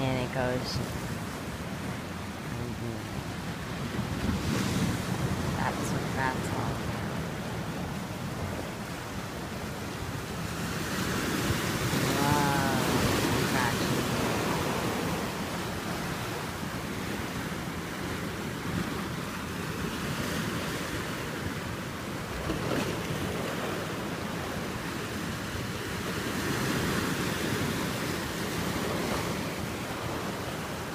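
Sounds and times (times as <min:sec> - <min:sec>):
ocean surf washing in: 0:00.0 - 0:30.9
wind on microphone: 0:00.8 - 0:09.7.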